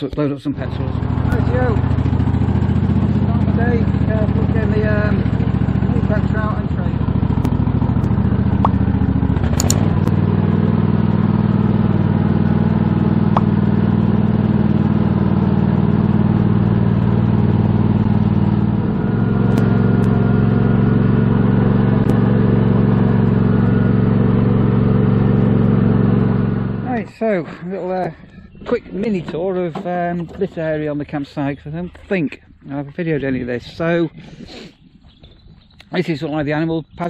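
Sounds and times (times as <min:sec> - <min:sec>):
small tractor engine running: 0:00.0 - 0:36.2
sharp clicks: 0:07.4 - 0:08.8, 0:09.4 - 0:10.2.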